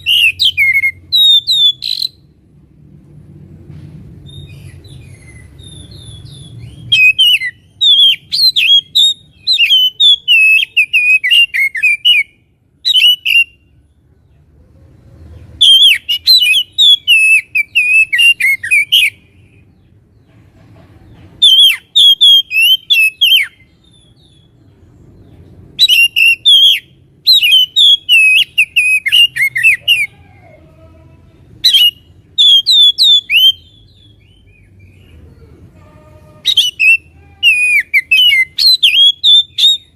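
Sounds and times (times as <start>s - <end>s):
magpie-robin singing whistled phrases: 0.0s - 2.2s, 4.2s - 13.7s, 15.6s - 19.6s, 21.4s - 24.5s, 25.8s - 30.1s, 31.6s - 35.0s, 36.4s - 39.9s.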